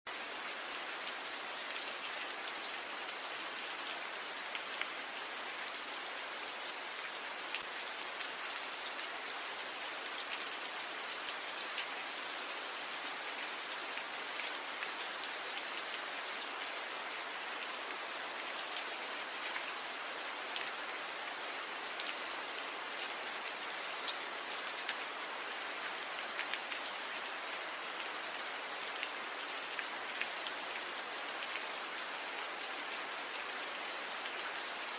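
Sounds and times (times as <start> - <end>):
rain pattering on leaves: 17.5 - 34.9.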